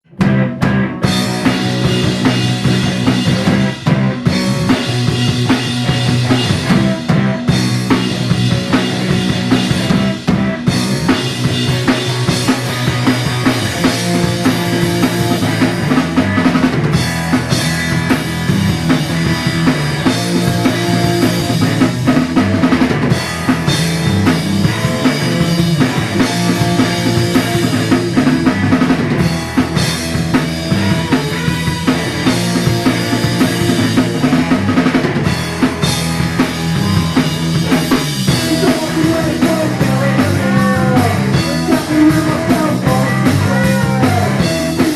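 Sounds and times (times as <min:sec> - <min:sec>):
bass line: 0:00.0 - 0:44.9
drum kit beat: 0:00.0 - 0:44.9
grunge rock band instrumental: 0:00.0 - 0:44.9.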